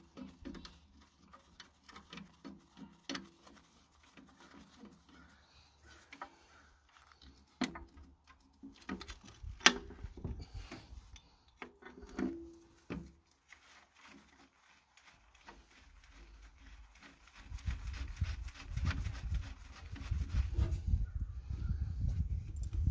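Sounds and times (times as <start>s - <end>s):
metal knocks clanks and scraping: 7.5s - 13.2s.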